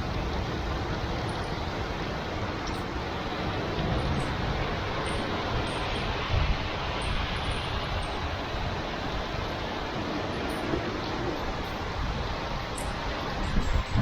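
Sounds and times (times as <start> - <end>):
heavy rain hissing: 0.0 - 14.0.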